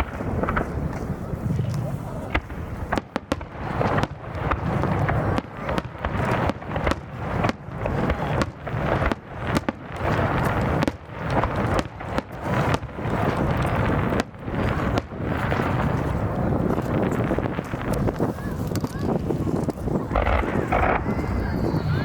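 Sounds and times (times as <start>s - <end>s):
fireworks rumble and crackle: 0.0s - 22.0s
firework shells bursting: 8.8s - 22.0s.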